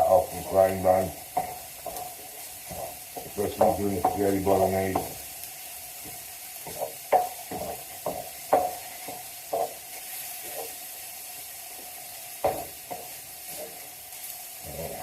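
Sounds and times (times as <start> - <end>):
meat sizzling in a pan: 0.0 - 15.0
utensil scraping a pan: 0.4 - 5.2.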